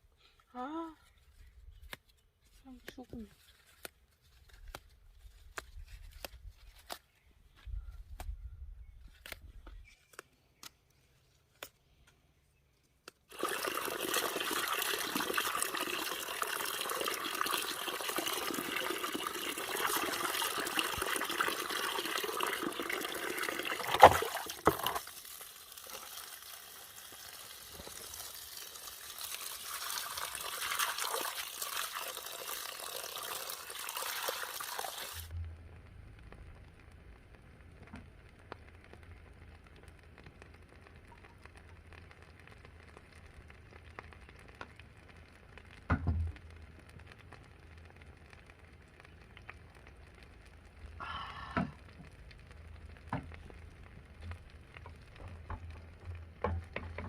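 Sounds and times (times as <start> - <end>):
water running in a stream: 13.3 - 35.4.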